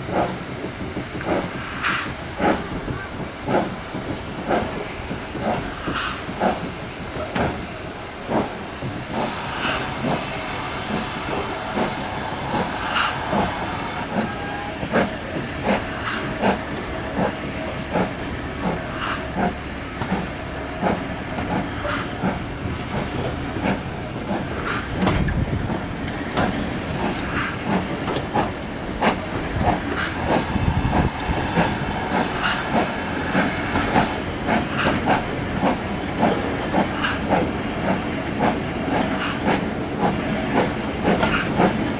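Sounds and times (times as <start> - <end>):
hissing steam: 0.0 - 41.9
steam locomotive working: 0.0 - 41.9.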